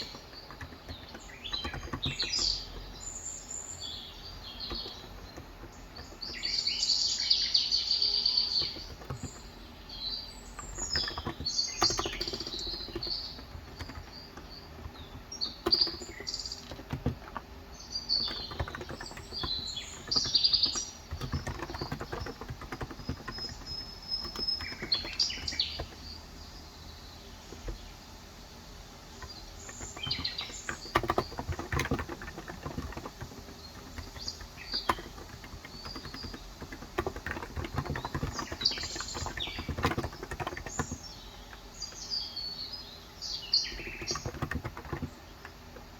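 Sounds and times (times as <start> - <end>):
keyboard keystrokes: 0.0 - 2.9, 10.7 - 17.4, 18.2 - 26.1, 29.2 - 41.1, 43.7 - 45.6
birds chirping: 0.0 - 45.9.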